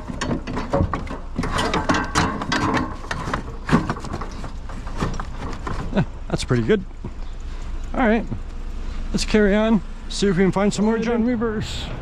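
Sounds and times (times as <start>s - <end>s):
metal chair clanking and rattling: 0.0s - 6.2s.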